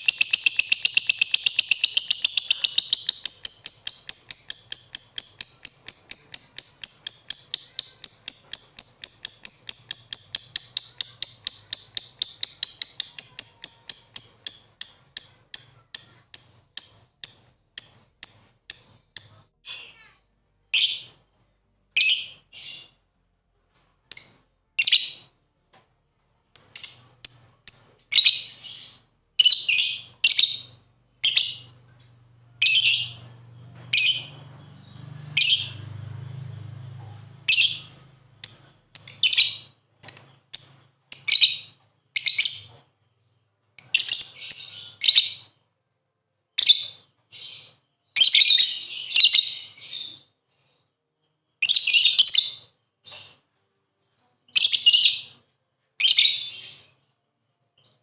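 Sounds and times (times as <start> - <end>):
lovebirds chirping shrilly: 0.0 - 19.4, 33.9 - 35.9, 37.5 - 42.8.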